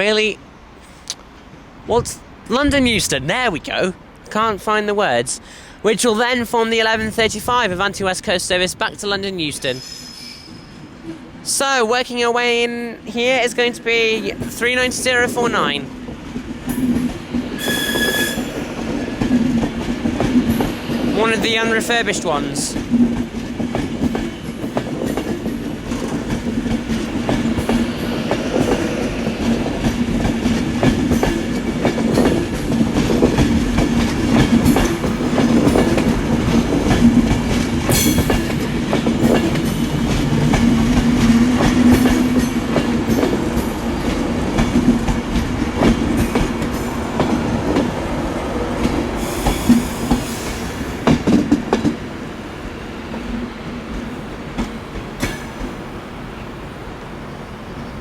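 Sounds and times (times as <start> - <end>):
steady train hum: 0.0 - 58.0
train wheels clicking over rail joints: 16.1 - 52.1, 53.1 - 55.8.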